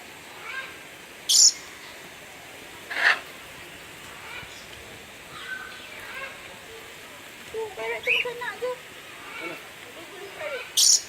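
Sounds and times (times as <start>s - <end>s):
parrots screeching: 2.9s - 3.3s.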